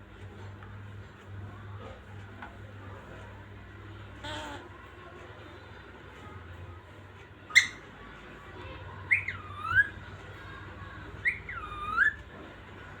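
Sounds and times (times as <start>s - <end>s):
parrot squawk: 7.5s - 7.8s, 9.1s - 10.0s, 11.2s - 12.2s
parrot whistled calls: 7.5s - 7.8s, 9.1s - 10.0s, 11.2s - 12.2s.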